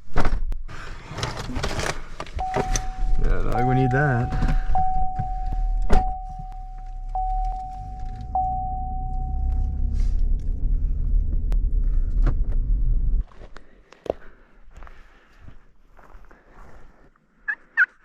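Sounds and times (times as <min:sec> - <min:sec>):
high electronic warning tone: 0:02.4 - 0:10.2
pickup truck engine rumbling: 0:02.4 - 0:13.2.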